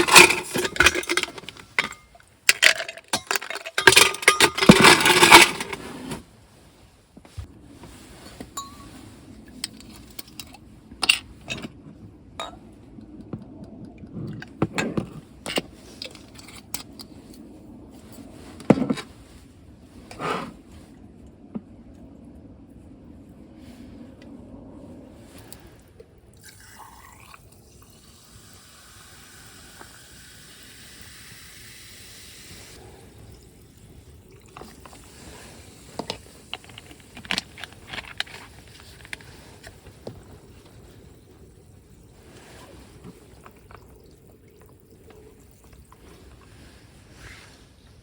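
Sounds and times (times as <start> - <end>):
small hard objects clinking: 0.0 - 5.8.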